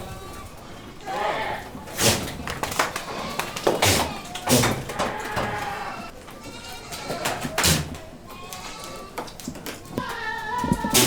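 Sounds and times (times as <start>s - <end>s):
goats bleating: 0.0s - 11.0s.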